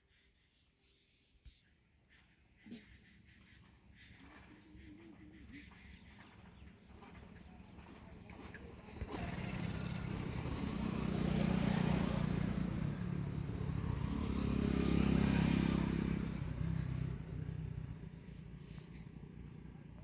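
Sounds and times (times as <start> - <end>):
vehicle engine passing by: 7.0 - 20.0.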